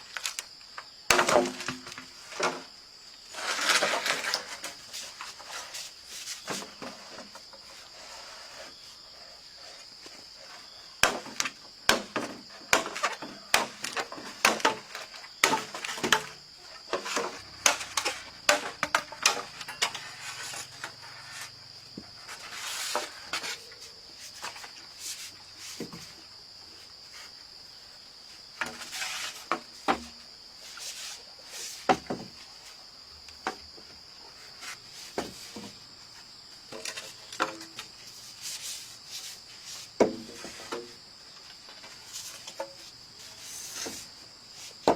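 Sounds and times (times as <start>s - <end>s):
insects droning: 0.0s - 44.9s
sharp knocks and clatter: 11.0s - 20.1s.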